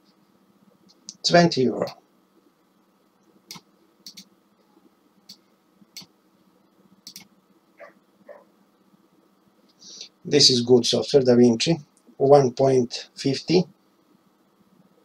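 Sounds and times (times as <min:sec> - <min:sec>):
computer mouse clicking: 0:03.5 - 0:04.3, 0:07.0 - 0:07.3.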